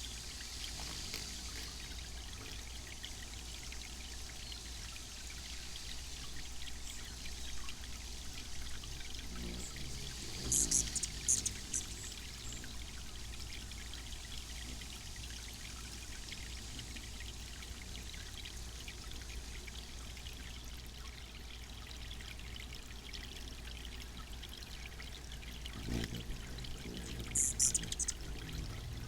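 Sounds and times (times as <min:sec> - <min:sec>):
fountain water splashing: 0:00.0 - 0:29.0
steady low hum: 0:24.2 - 0:29.0.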